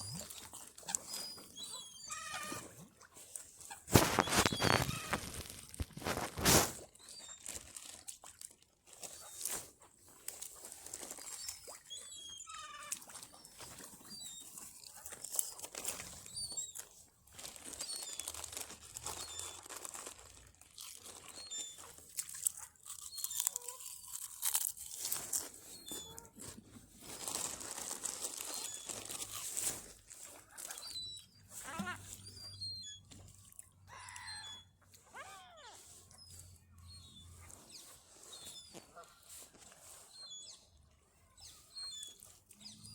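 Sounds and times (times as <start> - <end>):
small birds chirping: 0.0 - 2.7, 3.7 - 6.4, 11.2 - 17.0, 21.1 - 24.3, 28.4 - 42.9.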